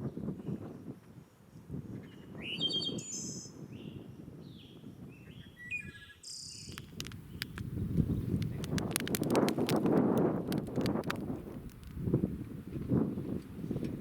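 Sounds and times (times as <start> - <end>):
birds chirping: 4.6 - 9.2
sharp clicks: 6.6 - 12.0.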